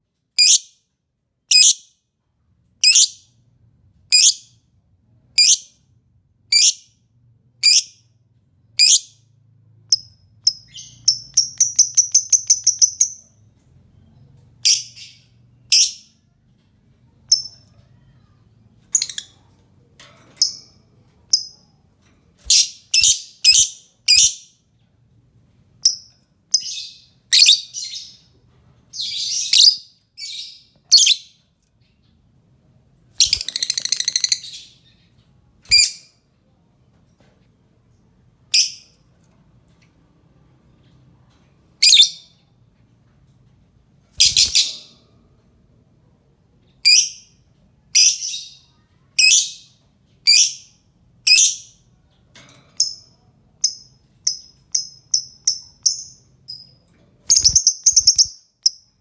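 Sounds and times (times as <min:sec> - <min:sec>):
lovebird chirping: 0:00.4 - 0:00.7, 0:01.5 - 0:01.8, 0:02.8 - 0:03.3, 0:05.4 - 0:05.7, 0:06.5 - 0:06.8, 0:07.6 - 0:08.0, 0:08.8 - 0:09.2, 0:09.9 - 0:13.4, 0:14.6 - 0:16.1, 0:17.3 - 0:17.7, 0:22.4 - 0:24.5, 0:25.8 - 0:28.3, 0:28.9 - 0:31.4, 0:33.2 - 0:35.1, 0:35.7 - 0:36.1, 0:38.5 - 0:38.9, 0:41.8 - 0:42.3, 0:44.2 - 0:44.9, 0:46.8 - 0:51.9, 0:52.8 - 0:59.0.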